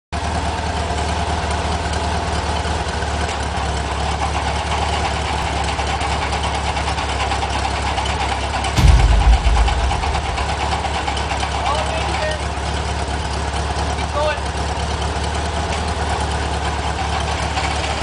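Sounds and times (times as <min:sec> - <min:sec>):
loud low boom: 0:08.8 - 0:11.1.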